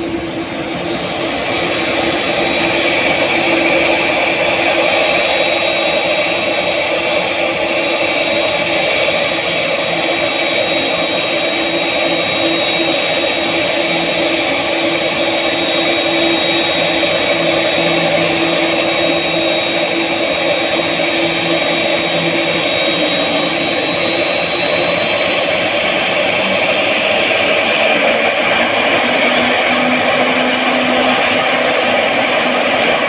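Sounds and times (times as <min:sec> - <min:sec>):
high thin engine whine: 0:00.0 - 0:33.0
jet engines rushing: 0:00.0 - 0:33.0.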